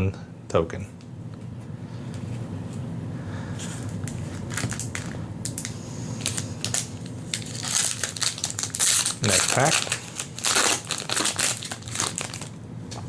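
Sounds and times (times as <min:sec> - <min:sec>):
foil wrapper crinkling: 0:03.8 - 0:12.6.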